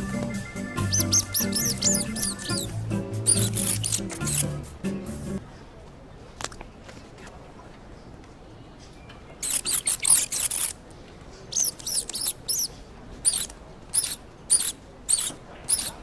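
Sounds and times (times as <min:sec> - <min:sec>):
very high-pitched squeaks: 0:00.0 - 0:04.6, 0:09.4 - 0:10.8, 0:11.5 - 0:16.0.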